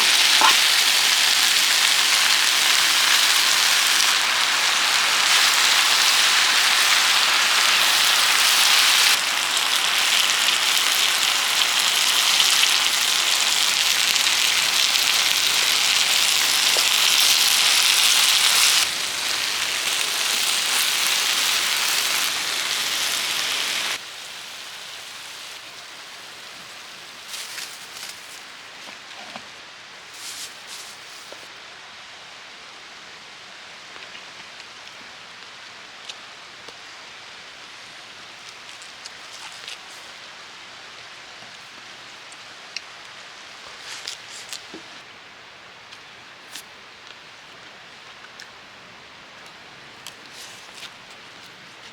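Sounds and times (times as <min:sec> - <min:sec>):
rushing water hiss: 0:00.0 - 0:28.9.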